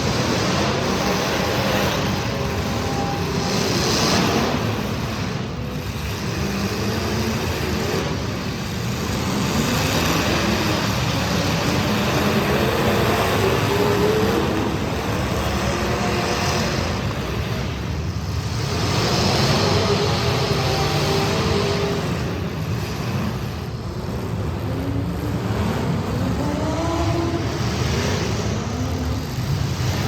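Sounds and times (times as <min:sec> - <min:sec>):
race car engines revving: 0:00.0 - 0:30.0.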